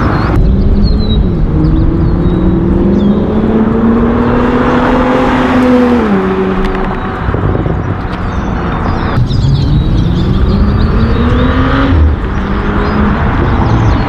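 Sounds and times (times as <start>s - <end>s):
car exhaust note rising in pitch: 9.2s - 12.3s.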